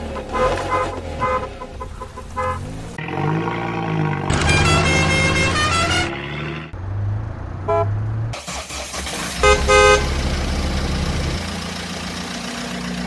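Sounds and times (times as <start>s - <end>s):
vehicle horn toots: 0.0s - 2.7s, 4.3s - 6.5s, 7.7s - 8.0s, 9.3s - 10.4s
engine drone: 0.0s - 13.0s.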